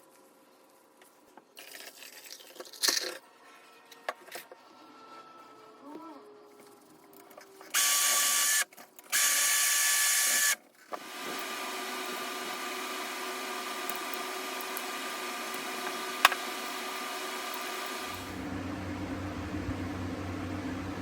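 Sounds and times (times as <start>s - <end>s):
power tool motor whining: 7.7s - 18.6s.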